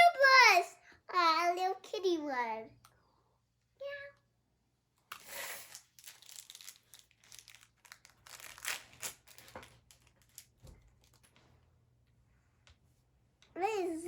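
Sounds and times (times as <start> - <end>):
plastic wrapping crinkling and tearing: 5.1 - 11.4.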